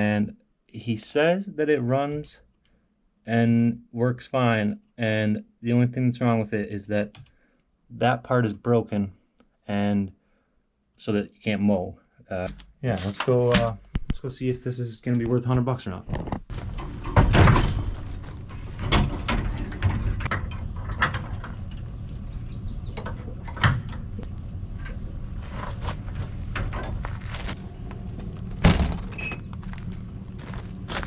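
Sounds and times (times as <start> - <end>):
mechanical clunks and knocks: 16.5 - 22.2, 22.9 - 25.0, 26.1 - 27.1, 28.5 - 29.4
steady low rumble: 17.6 - 31.0.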